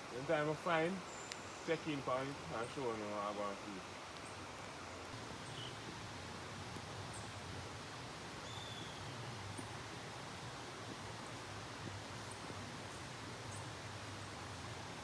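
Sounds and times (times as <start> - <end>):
faint high bird chirps: 8.4 - 9.1.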